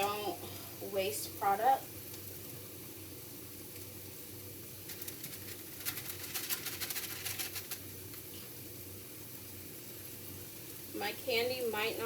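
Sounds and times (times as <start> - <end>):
vegetables sizzling in oil: 0.0 - 12.0
oil crackling and popping: 1.3 - 11.0.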